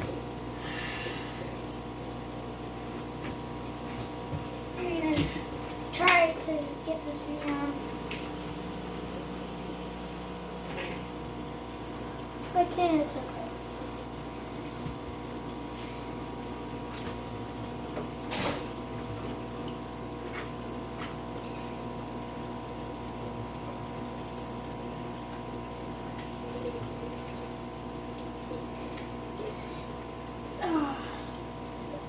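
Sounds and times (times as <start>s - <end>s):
aquarium pump humming: 0.0s - 32.0s
moving water: 0.0s - 32.0s
small knocks and splashes: 7.4s - 8.7s, 16.8s - 21.9s.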